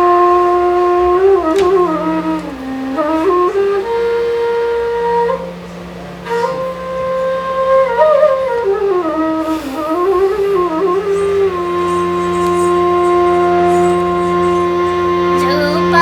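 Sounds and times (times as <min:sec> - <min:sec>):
flute playing slow melody: 0:00.0 - 0:16.0.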